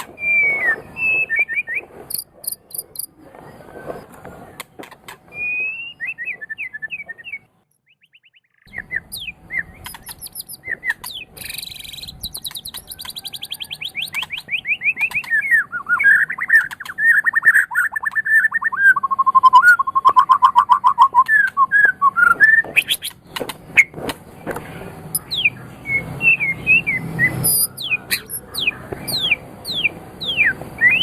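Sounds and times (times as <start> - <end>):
songbird singing: 0.0 - 31.0
rapid chattering bird trills: 0.2 - 3.2, 8.1 - 21.6, 25.1 - 26.0, 26.8 - 31.0.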